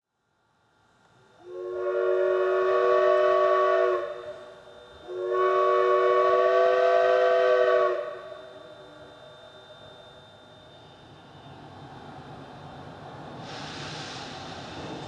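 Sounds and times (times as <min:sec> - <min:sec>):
steam locomotive chime whistle: 0:01.2 - 0:11.7.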